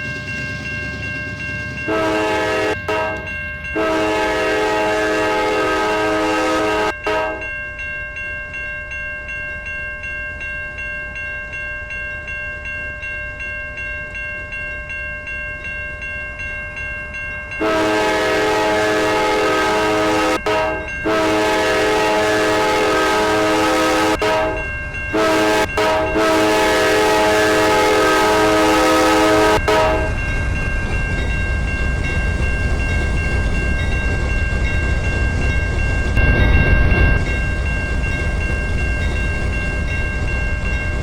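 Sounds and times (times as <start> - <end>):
locomotive air horn blasts: 1.9 - 7.5, 17.6 - 30.2
train clattering: 17.4 - 41.0.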